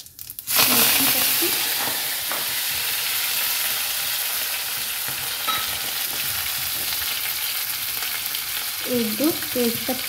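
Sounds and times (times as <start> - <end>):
spices sizzling in hot oil: 0.0 - 10.0.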